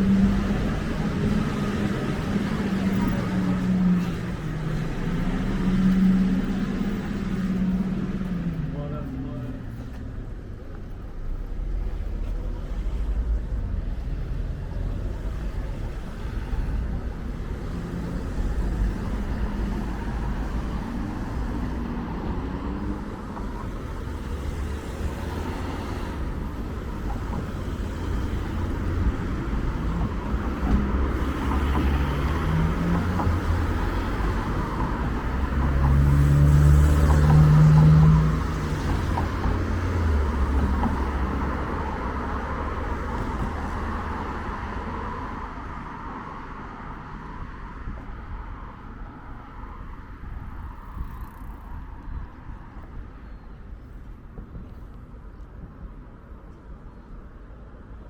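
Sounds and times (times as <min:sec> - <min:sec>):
road traffic rumble: 0:00.0 - 0:58.0
vehicle engine passing: 0:27.6 - 0:42.2.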